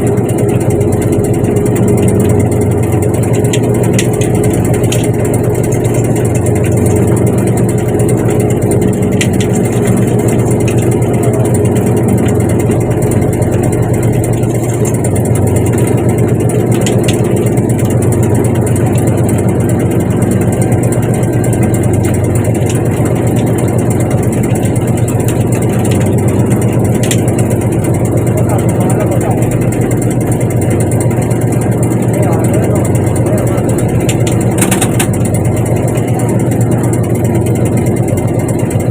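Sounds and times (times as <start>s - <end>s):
boat engine droning: 0.0s - 38.9s.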